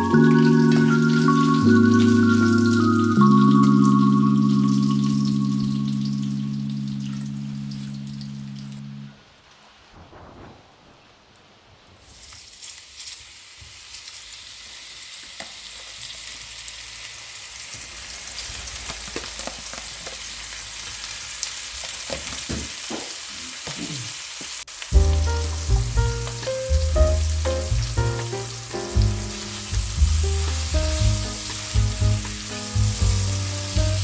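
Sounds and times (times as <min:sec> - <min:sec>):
food sizzling in frying pan: 0:00.0 - 0:08.8, 0:12.0 - 0:34.0
music with bass line: 0:00.0 - 0:09.0, 0:25.0 - 0:34.0.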